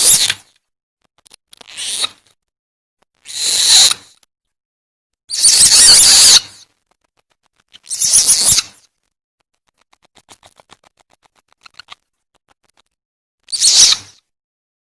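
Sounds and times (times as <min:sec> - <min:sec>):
harsh animal screeches: 0:00.0 - 0:00.5, 0:01.5 - 0:02.3, 0:03.2 - 0:04.3, 0:05.3 - 0:06.7, 0:07.7 - 0:08.9, 0:09.7 - 0:14.3
faint rapid clicks: 0:06.6 - 0:07.9, 0:08.8 - 0:13.0.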